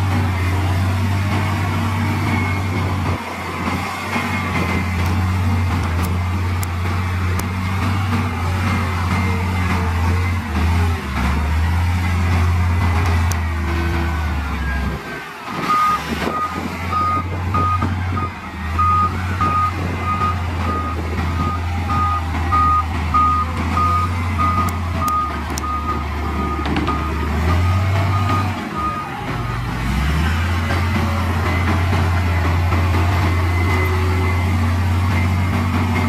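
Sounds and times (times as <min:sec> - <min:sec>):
diesel engine droning: 0:00.0 - 0:36.0
reversing alarm beeping: 0:14.4 - 0:30.5.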